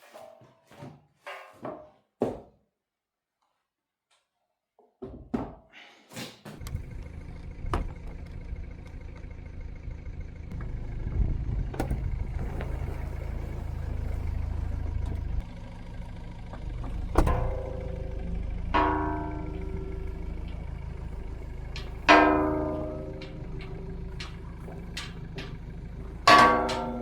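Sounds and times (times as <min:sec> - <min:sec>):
tractor engine running: 0:06.6 - 0:27.0
sharp knocks: 0:18.8 - 0:27.0.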